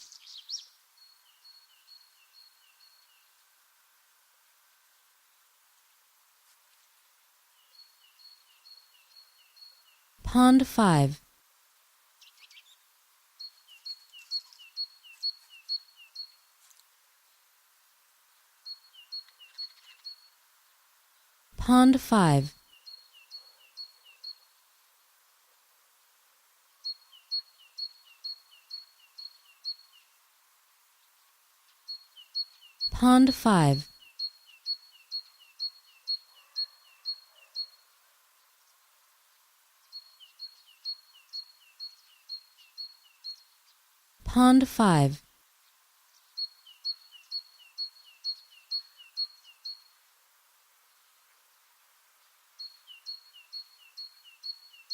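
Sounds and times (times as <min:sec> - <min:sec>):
songbird two-part call: 0:00.0 - 0:03.3, 0:33.8 - 0:37.9, 0:46.3 - 0:50.0, 0:52.6 - 0:54.9
faint outdoor hiss: 0:00.0 - 0:54.9.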